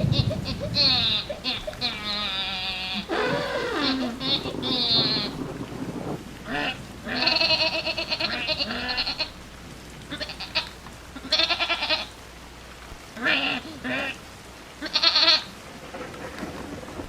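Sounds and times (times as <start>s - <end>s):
animal bleating: 0.4s - 5.4s, 6.5s - 9.4s, 10.1s - 12.1s, 13.2s - 14.2s, 14.8s - 15.5s.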